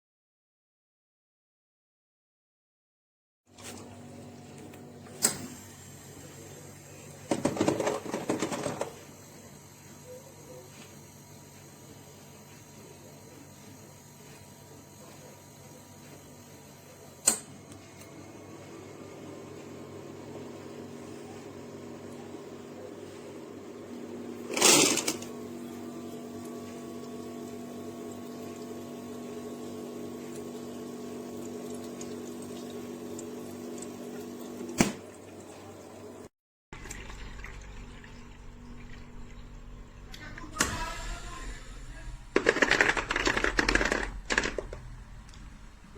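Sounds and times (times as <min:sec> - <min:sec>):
ice maker motor hum: 0:03.5 - 0:45.9
watery pump sound: 0:26.0 - 0:36.1.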